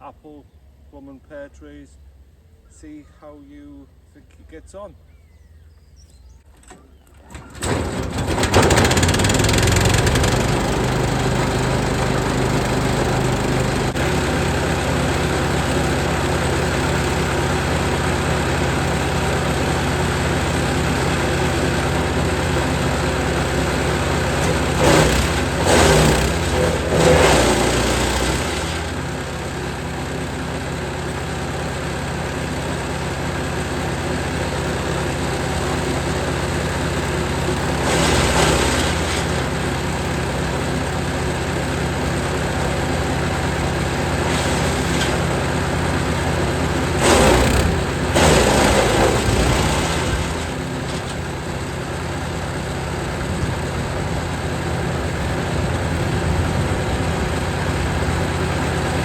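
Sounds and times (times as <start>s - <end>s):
wood chipper running: 5.4s - 59.0s
branches crunching in chipper: 33.4s - 59.0s.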